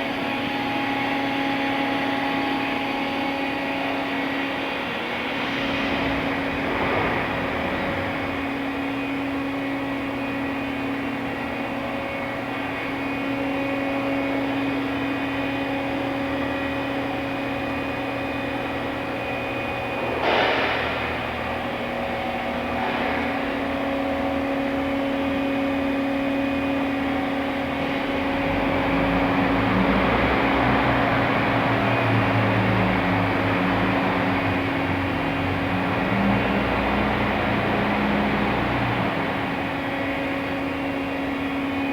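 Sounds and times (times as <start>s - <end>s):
machining center hum: 0.0s - 41.9s.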